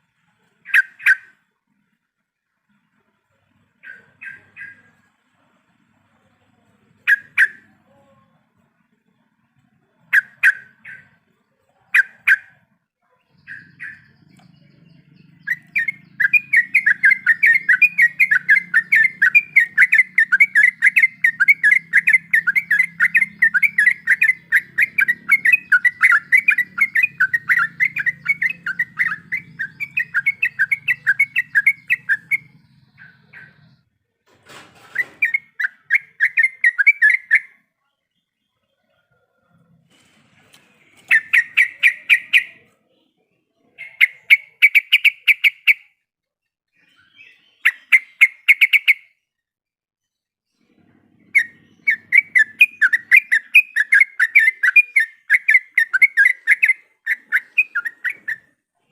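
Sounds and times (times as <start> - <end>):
bird chattering song: 0.5 - 1.5, 3.8 - 5.5, 6.6 - 8.2, 8.8 - 33.9, 34.8 - 39.1, 40.8 - 46.0, 46.8 - 49.3, 50.6 - 58.9
faint low hum: 1.5 - 12.0.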